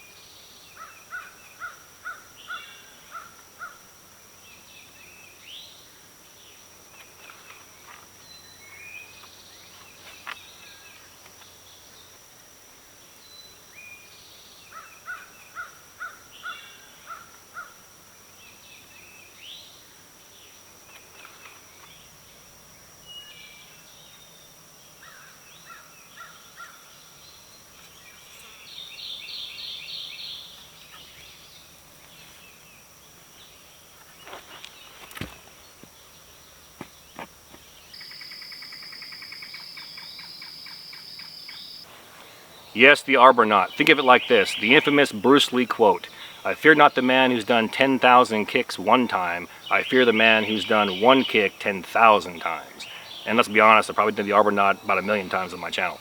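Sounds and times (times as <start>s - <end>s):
birds chirping and whistling: 48.8s - 56.0s.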